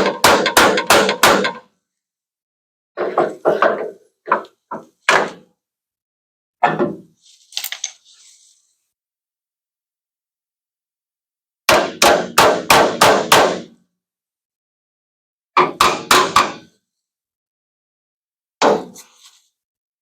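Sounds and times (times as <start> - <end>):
hammer striking sheet metal: 0.0 - 1.7, 11.7 - 13.8, 15.6 - 16.8.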